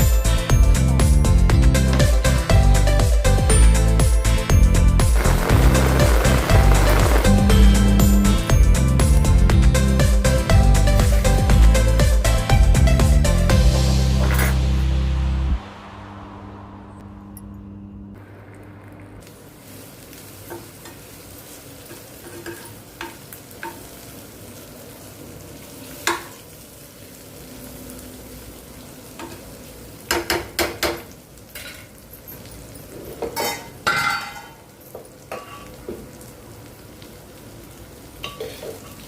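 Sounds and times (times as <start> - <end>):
food sizzling in a pan: 5.1 - 9.2, 19.3 - 39.0.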